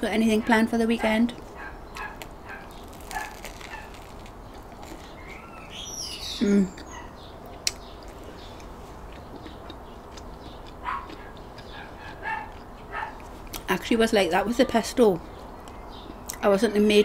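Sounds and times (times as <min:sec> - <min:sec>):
person chewing crusty bread: 0:01.3 - 0:13.7, 0:15.4 - 0:16.4
bird chirping: 0:01.3 - 0:13.8, 0:14.4 - 0:17.0.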